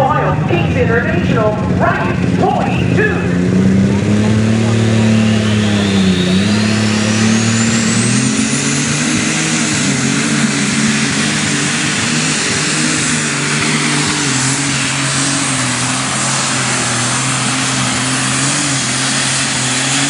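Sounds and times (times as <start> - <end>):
high turbo whine: 0.0 - 20.0
tractor engine running hard: 0.0 - 20.0.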